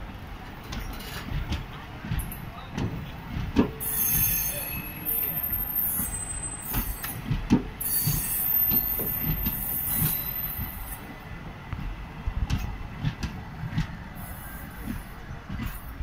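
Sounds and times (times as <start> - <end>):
train coaches rolling past: 0.0 - 16.0
high wheel squeal: 3.8 - 7.2, 7.8 - 10.9.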